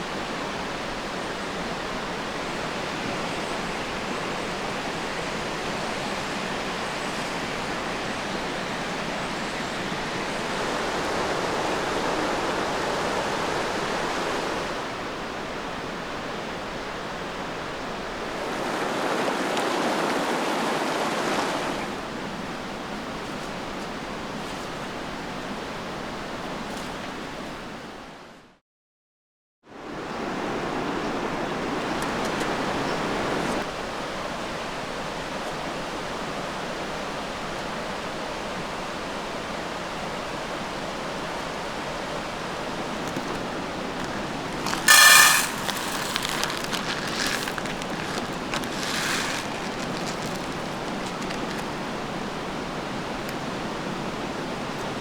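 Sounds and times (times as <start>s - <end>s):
running water rushing: 0.0s - 26.4s, 40.1s - 55.0s
short ringing clink: 44.7s - 47.4s.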